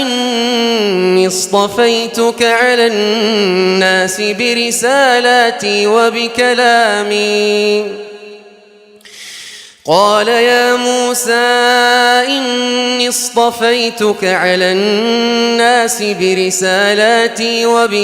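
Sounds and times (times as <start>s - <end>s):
person chanting a recitation: 0.0s - 8.5s, 9.9s - 18.0s.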